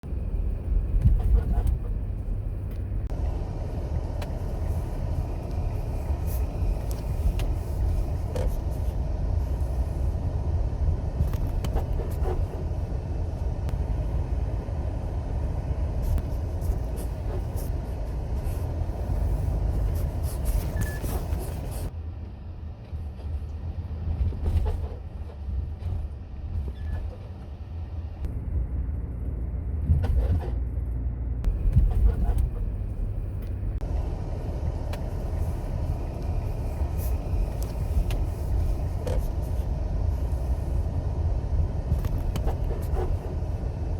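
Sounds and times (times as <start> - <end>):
car road rumble: 0.0 - 43.9
suspension creaks and clicks: 0.8 - 3.2, 29.8 - 40.6, 41.5 - 43.8.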